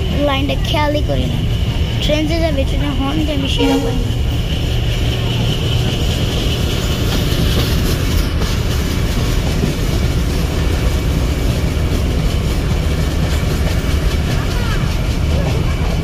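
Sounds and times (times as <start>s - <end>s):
train rumble inside carriage: 0.0s - 16.0s
wheels clickety-clack over rail joints: 0.0s - 16.0s.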